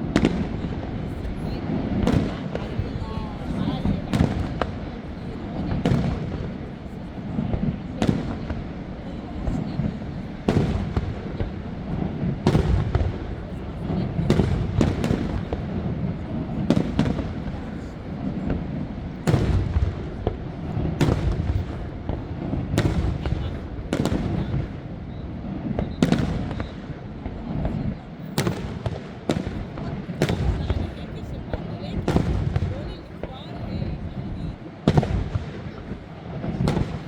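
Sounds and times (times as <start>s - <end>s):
fireworks bangs and booms: 0.0s - 37.0s.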